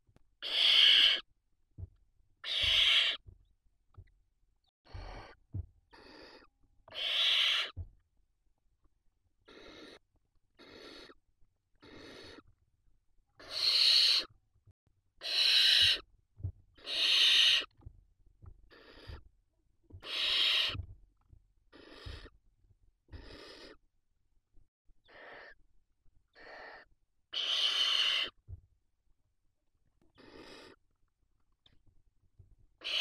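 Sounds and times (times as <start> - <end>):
owl chicks hissing calls: 0.4 - 1.3, 2.4 - 3.2, 4.9 - 7.8, 9.4 - 10.0, 10.6 - 11.2, 11.8 - 12.5, 13.4 - 14.3, 15.2 - 16.1, 16.8 - 17.7, 18.7 - 19.2, 20.0 - 20.8, 21.7 - 22.4, 23.1 - 23.8, 25.0 - 25.6, 26.3 - 28.4, 30.2 - 30.8, 32.8 - 33.0.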